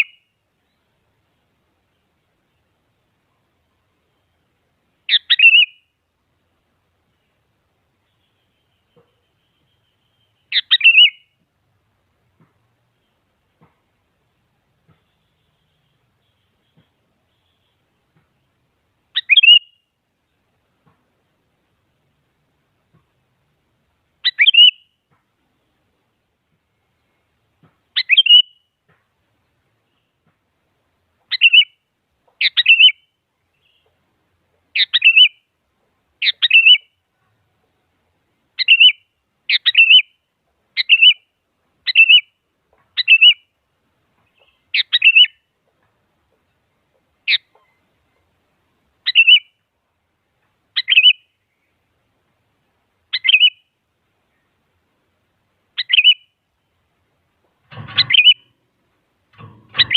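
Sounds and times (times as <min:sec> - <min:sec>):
bird short sharp calls: 0:05.1 - 0:05.8, 0:19.2 - 0:19.8, 0:24.2 - 0:25.0, 0:28.0 - 0:28.7, 0:43.0 - 0:43.4, 0:44.2 - 0:45.4, 0:49.0 - 0:49.5, 0:50.8 - 0:51.7, 0:53.1 - 0:53.6, 0:55.8 - 0:56.4, 0:57.7 - 0:58.6, 0:59.4 - 0:59.9.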